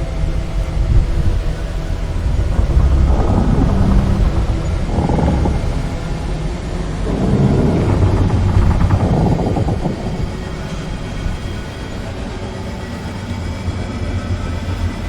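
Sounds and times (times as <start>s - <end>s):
deep steady rumble: 0.0s - 13.2s
rough rushing noise: 1.5s - 12.4s.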